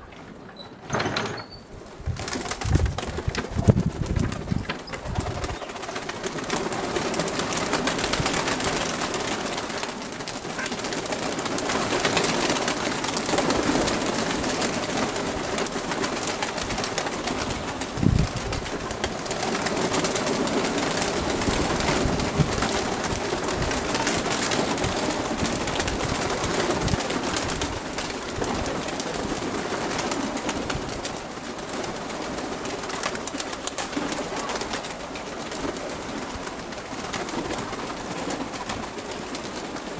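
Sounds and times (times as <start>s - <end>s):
gusty wind: 1.8s - 5.6s, 17.5s - 19.0s.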